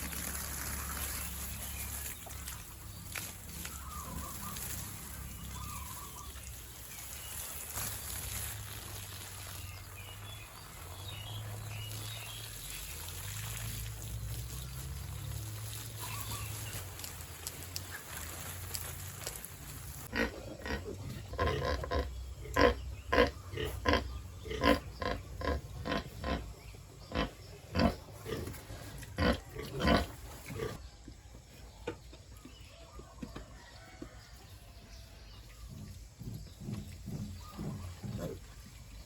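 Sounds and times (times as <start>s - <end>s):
pigs grunting: 20.1s - 30.8s, 35.6s - 38.8s.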